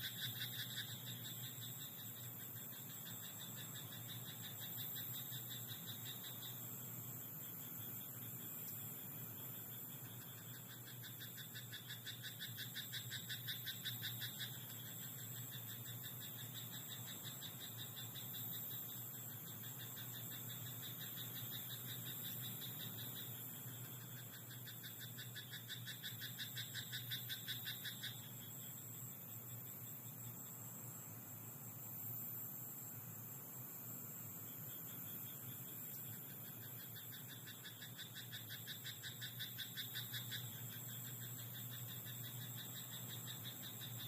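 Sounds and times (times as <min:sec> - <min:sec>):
frog croaking: 0:00.0 - 0:06.8, 0:09.7 - 0:28.8, 0:34.7 - 0:44.0
background hiss: 0:00.0 - 0:44.0.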